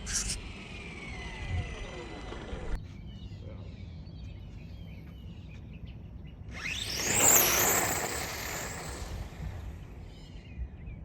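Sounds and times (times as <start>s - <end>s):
electric motor whine: 0.0s - 2.8s, 6.5s - 9.9s
tyre and motor rush: 0.0s - 2.8s, 6.5s - 10.1s.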